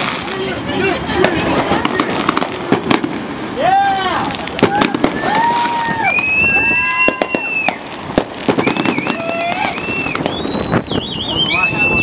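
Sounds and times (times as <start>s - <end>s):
firework cracks and pops: 0.0s - 11.7s
firework whistles: 4.5s - 12.0s.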